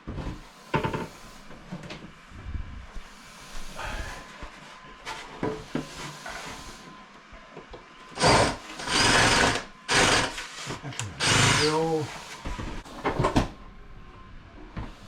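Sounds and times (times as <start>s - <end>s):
electric drill into wall: 8.2s - 12.2s.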